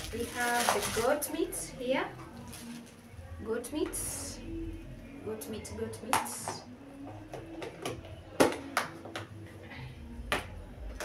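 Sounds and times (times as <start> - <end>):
groceries clicking and knocking: 6.1 - 9.4.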